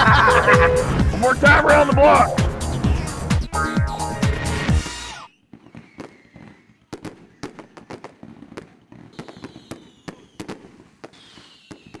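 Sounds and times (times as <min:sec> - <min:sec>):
falling firework whistle: 0:05.0 - 0:06.8, 0:08.8 - 0:12.0
fireworks bangs and pops: 0:05.4 - 0:12.0.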